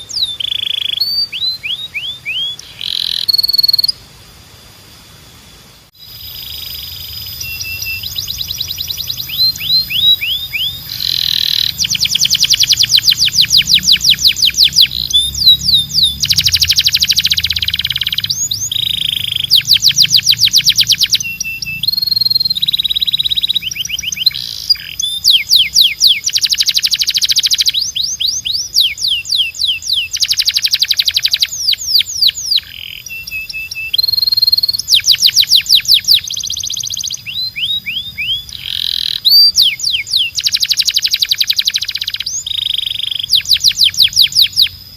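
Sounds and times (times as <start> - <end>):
canary singing trills: 0.0 - 4.1, 6.0 - 44.9.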